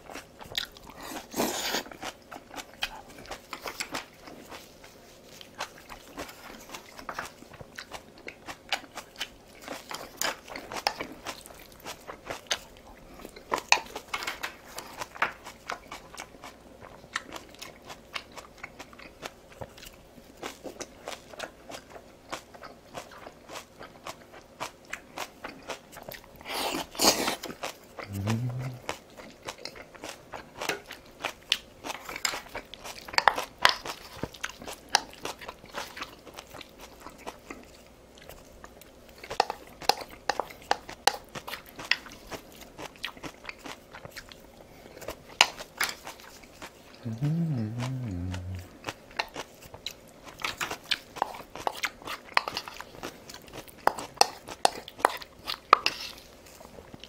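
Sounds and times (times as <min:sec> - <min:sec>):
chewing crunchy fried food: 0:00.0 - 0:57.0
wet mouth sounds: 0:28.0 - 0:29.0, 0:47.0 - 0:49.0.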